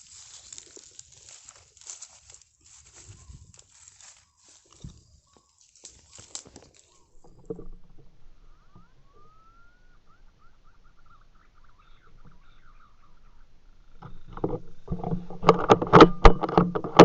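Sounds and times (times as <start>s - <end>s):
high bird chirps: 2.8s - 7.4s, 8.2s - 13.6s
gliding bird whistle: 8.2s - 13.4s.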